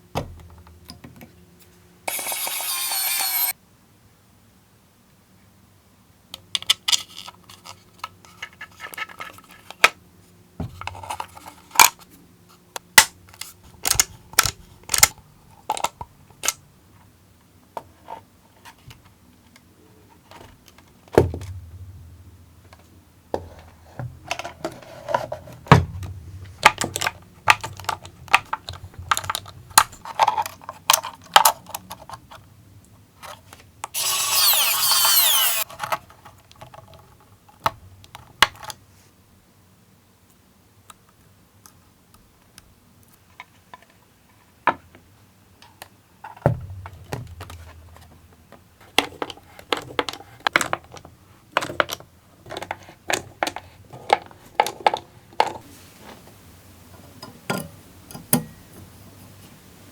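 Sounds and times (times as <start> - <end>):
plastic parts clicking and tapping: 12.8 - 16.6, 23.4 - 32.2, 48.8 - 55.6.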